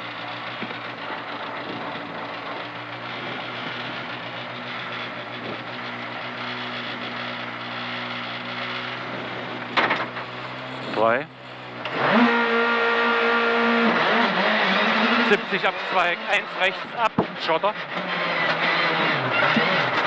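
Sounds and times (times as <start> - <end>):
car engine idling: 0.0 - 12.2.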